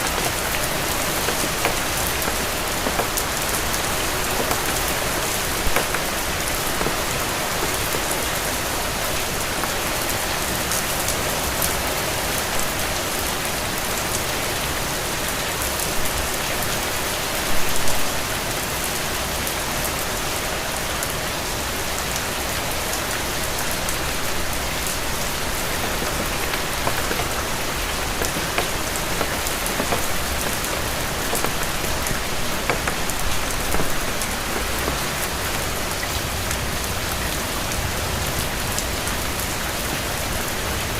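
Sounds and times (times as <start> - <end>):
raindrop ticks: 0.0 - 11.6, 23.7 - 36.7
steady rain: 0.0 - 40.9.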